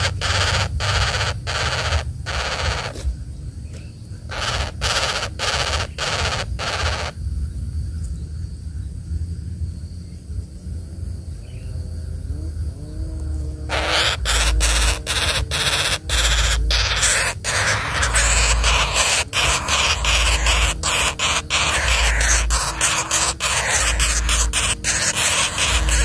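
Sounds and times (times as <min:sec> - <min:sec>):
bird harsh rasping calls: 0:00.0 - 0:03.1, 0:04.3 - 0:07.2, 0:13.7 - 0:26.0.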